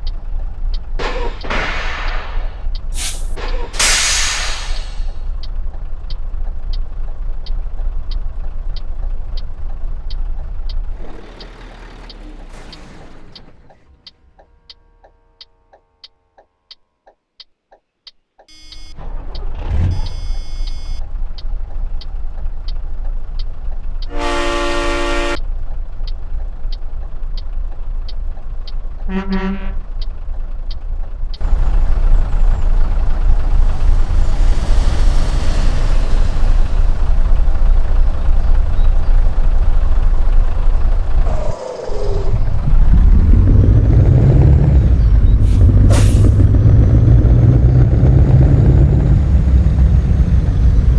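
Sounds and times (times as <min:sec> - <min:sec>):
diesel truck engine running: 0:00.0 - 0:14.4, 0:29.9 - 0:50.9
truck horn: 0:24.1 - 0:25.4, 0:29.0 - 0:30.0
steady ticking: 0:29.9 - 0:50.9.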